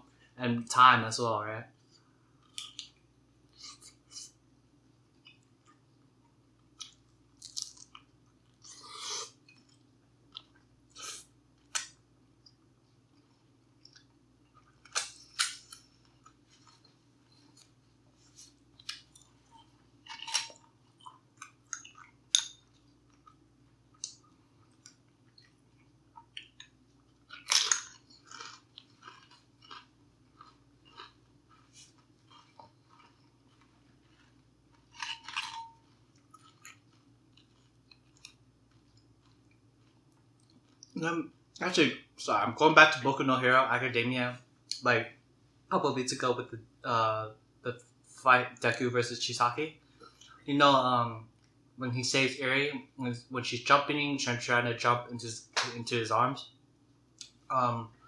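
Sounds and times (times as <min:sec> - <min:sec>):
person chewing with crunches: 0:06.5 - 0:41.5.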